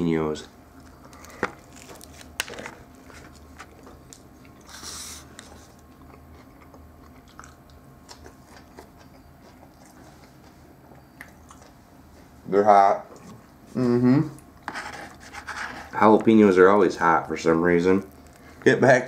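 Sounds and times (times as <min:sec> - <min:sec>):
person chewing pepper slices: 0:00.7 - 0:12.3.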